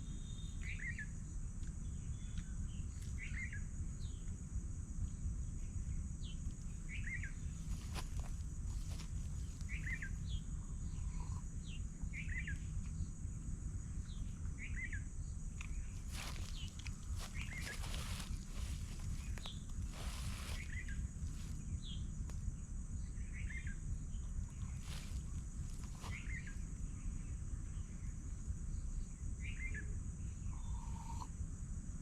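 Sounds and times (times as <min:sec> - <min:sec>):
low rumbling background: 0:00.0 - 0:32.0
bird chirping: 0:06.2 - 0:13.1, 0:14.0 - 0:22.1, 0:23.0 - 0:27.9
high-pitched insect drone: 0:06.8 - 0:13.4, 0:14.1 - 0:22.2, 0:22.8 - 0:27.9.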